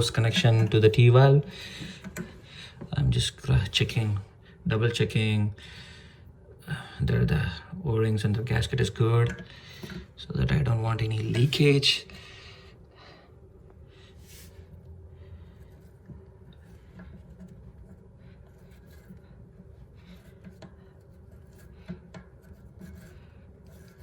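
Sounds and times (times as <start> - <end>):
hands rubbing and scraping hose fitting: 0.0 - 2.4, 15.4 - 24.0
low room hum: 0.0 - 24.0.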